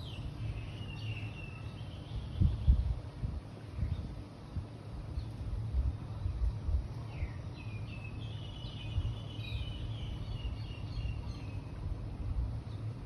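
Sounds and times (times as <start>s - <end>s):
songbird twittering: 0.0s - 3.0s, 7.0s - 11.8s
steady low rumble: 0.0s - 13.0s.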